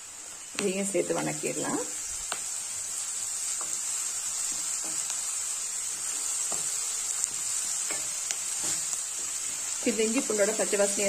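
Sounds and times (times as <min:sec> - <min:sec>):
onions sizzling in hot oil: 0:00.0 - 0:11.0
wooden spatula scraping: 0:05.8 - 0:10.9.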